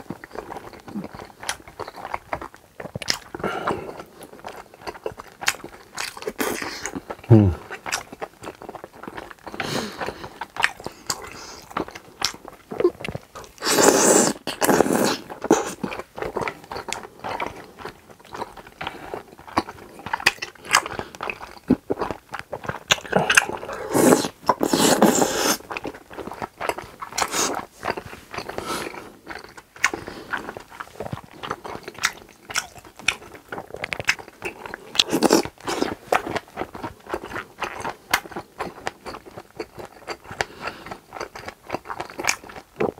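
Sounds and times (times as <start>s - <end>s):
close chewing and wet mouth sounds: 0.0s - 42.9s.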